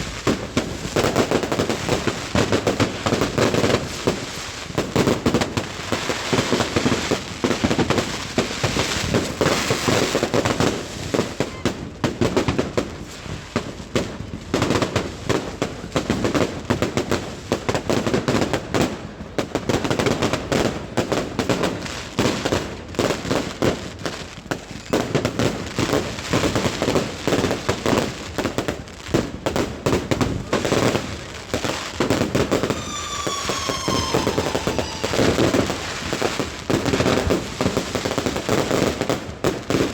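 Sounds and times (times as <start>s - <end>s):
fireworks bangs and crackles: 0.0s - 39.9s
falling firework whistle: 31.9s - 37.4s.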